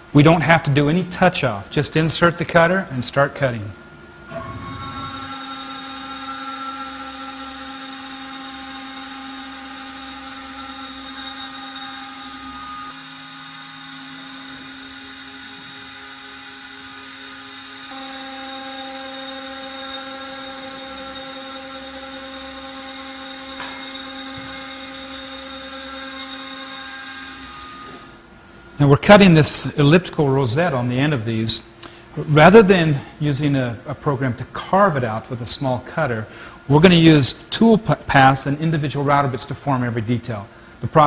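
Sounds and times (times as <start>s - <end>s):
router spindle whining: 4.2s - 29.6s.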